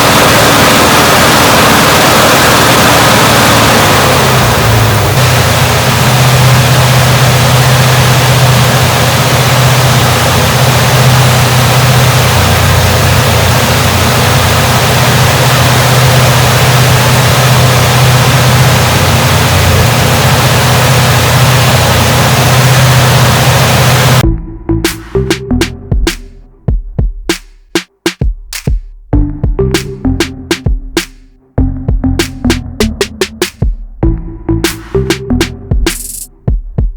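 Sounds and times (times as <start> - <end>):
engine idling: 0.0 - 24.2.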